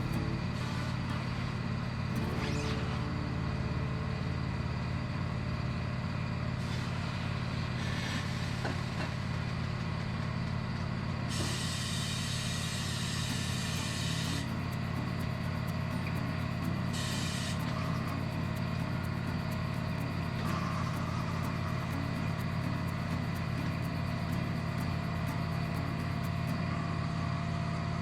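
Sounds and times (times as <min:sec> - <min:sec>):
steady motor hum: 0:00.0 - 0:28.0
compressed air hissing: 0:11.3 - 0:26.6.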